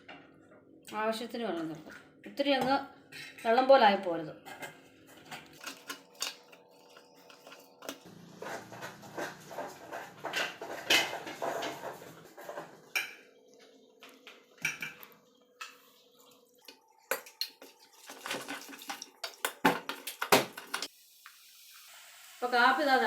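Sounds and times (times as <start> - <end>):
utensils clinking against a bowl: 4.4 - 13.3, 16.6 - 20.9.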